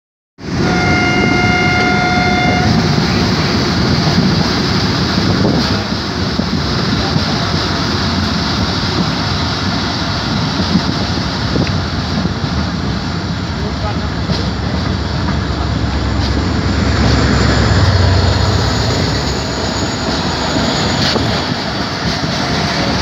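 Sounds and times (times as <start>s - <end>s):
passenger train running: 0.4s - 23.0s
locomotive horn: 0.5s - 2.9s.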